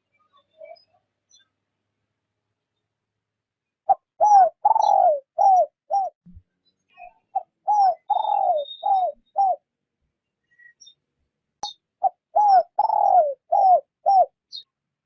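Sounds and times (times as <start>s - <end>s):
dove cooing: 3.9s - 6.2s, 7.4s - 9.6s, 12.0s - 14.4s.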